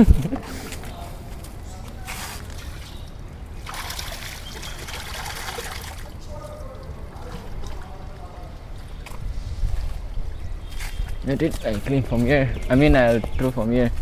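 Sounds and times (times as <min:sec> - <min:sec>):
water pouring and splashing: 0:03.6 - 0:08.0.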